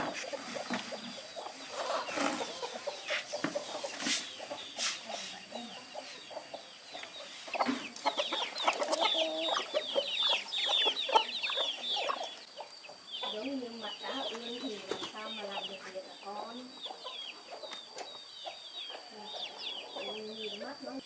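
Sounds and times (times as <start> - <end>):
chickens clucking: 0.0 - 21.0
high falling chirps: 1.4 - 14.6.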